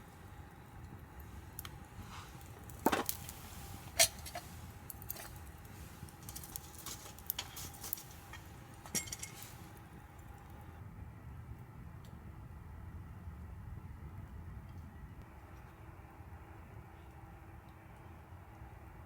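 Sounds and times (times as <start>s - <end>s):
metal gear clinking: 6.2s - 9.6s.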